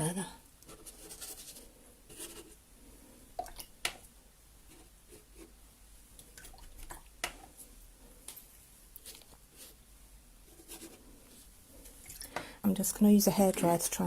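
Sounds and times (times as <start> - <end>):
wet paintbrush brushing on paper: 0.6 - 2.6, 10.4 - 11.5.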